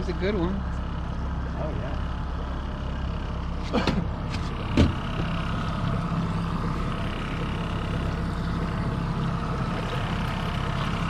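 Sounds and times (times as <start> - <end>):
boat motor droning: 0.0 - 11.0
loud thump: 3.8 - 5.0.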